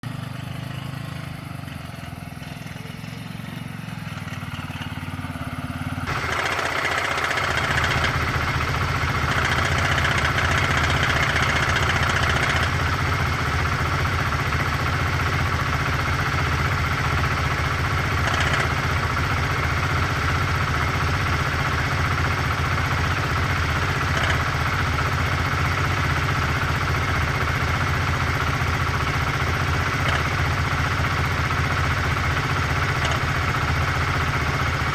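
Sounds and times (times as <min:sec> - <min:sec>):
motorcycle engine running: 0:00.0 - 0:34.9
metallic engine knocking: 0:06.0 - 0:34.9.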